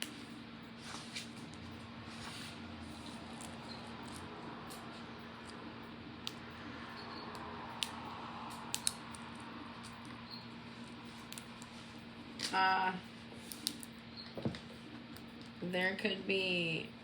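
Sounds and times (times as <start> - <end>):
person speaking: 12.5 - 13.1.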